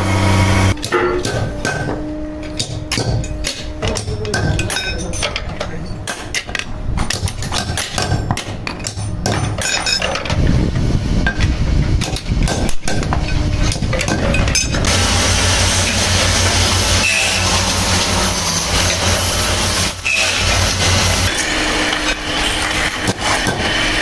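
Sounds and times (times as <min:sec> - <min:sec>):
low machine hum: 0:00.0 - 0:04.6, 0:13.2 - 0:24.0
loud steady machine noise: 0:00.0 - 0:04.7, 0:09.0 - 0:24.0.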